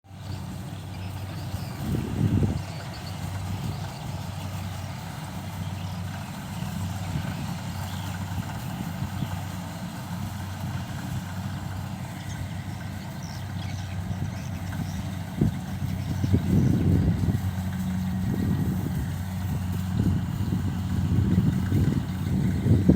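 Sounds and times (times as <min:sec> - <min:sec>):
harvester engine droning: 0:00.1 - 0:22.9.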